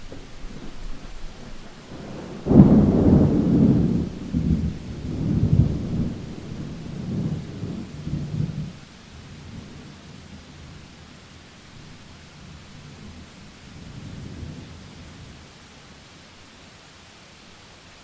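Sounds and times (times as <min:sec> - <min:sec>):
thunderclap rolling rumble: 0:00.0 - 0:08.8
light steady rain: 0:00.0 - 0:18.0.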